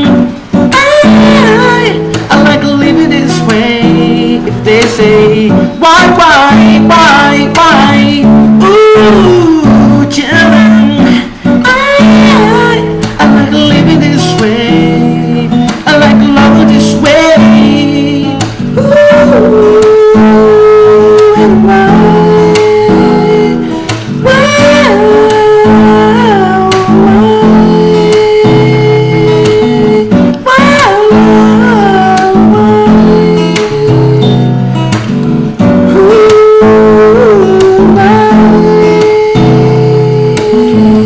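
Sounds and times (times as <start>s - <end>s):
acoustic guitar: 0.0s - 41.0s
person singing wordless notes: 0.0s - 41.0s.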